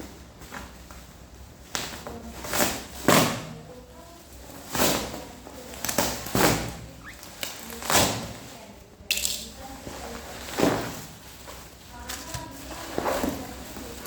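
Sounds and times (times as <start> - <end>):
packaging rustling and scraping: 9.6 - 14.0.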